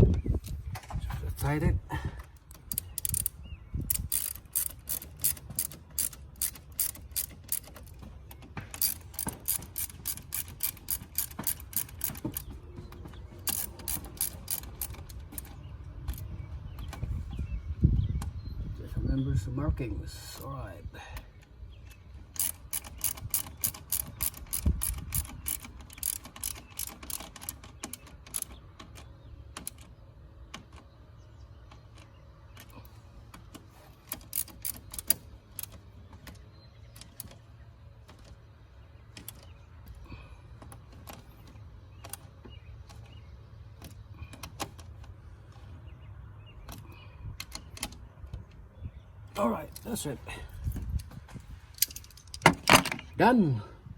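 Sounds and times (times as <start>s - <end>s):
socket ratchet clicking: 2.4s - 8.0s, 8.7s - 12.5s, 13.4s - 16.3s, 22.3s - 29.9s, 34.0s - 35.8s.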